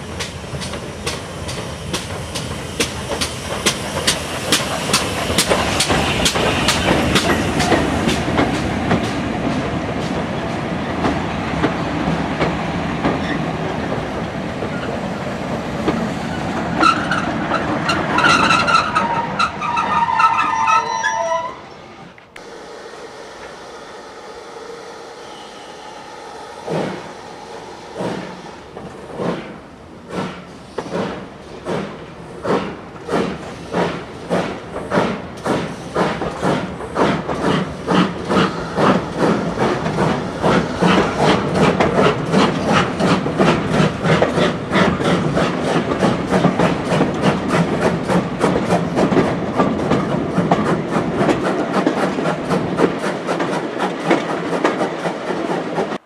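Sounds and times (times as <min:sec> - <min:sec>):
train low rumble: 0:00.0 - 0:20.3, 0:22.2 - 0:56.0
train wheels rhythmic beat: 0:00.1 - 0:10.4, 0:30.1 - 0:56.0.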